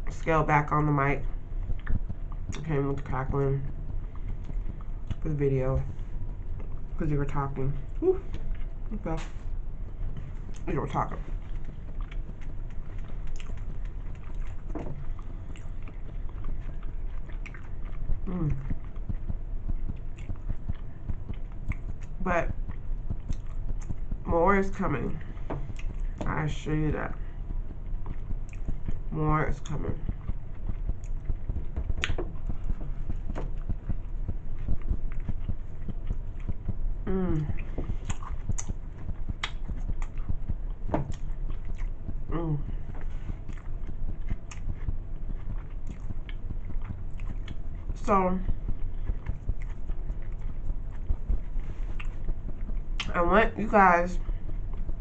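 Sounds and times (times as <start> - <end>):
low microphone rumble: 0.0 - 55.0
chewing and biting sandwich: 1.2 - 2.6, 7.8 - 24.3, 25.1 - 26.2, 27.1 - 29.1, 29.9 - 53.2, 54.1 - 55.0
person humming: 8.0 - 8.3, 18.2 - 18.8, 37.1 - 37.7
wet mouth clicks: 30.6 - 32.8, 34.7 - 40.3.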